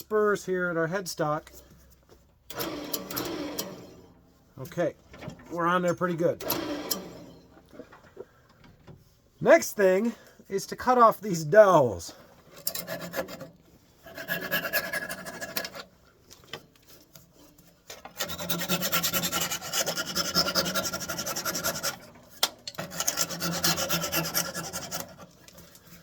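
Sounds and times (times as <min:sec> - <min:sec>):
saw cutting wood: 0:06.4 - 0:07.4, 0:12.8 - 0:15.8, 0:18.1 - 0:25.4.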